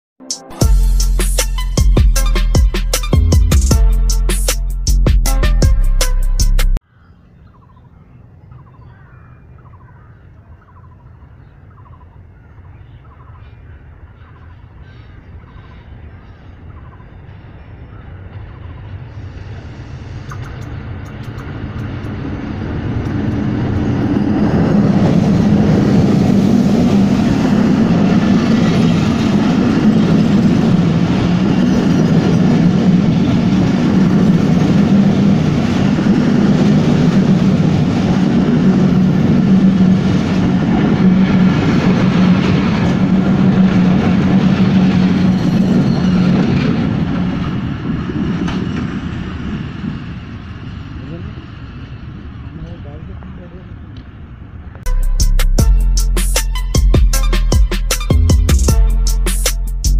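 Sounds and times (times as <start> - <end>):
diesel locomotive approaching: 0.3 - 59.9
train coaches rumbling past: 9.6 - 54.9
train wheel clicks: 20.2 - 24.1.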